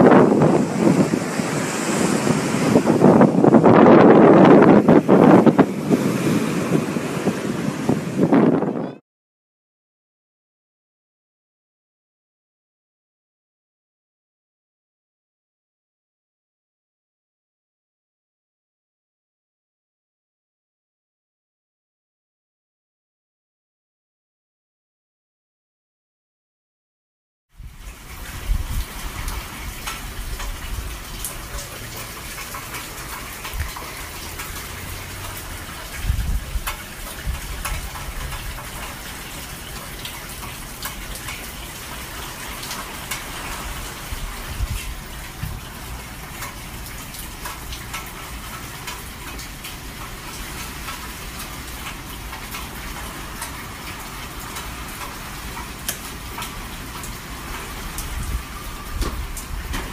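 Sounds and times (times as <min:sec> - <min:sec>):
steady rain: 0:00.0 - 0:08.8, 0:27.6 - 0:59.9
wind buffeting the microphone: 0:00.0 - 0:09.0, 0:27.6 - 0:42.0, 0:42.6 - 0:47.3, 0:56.3 - 0:59.9.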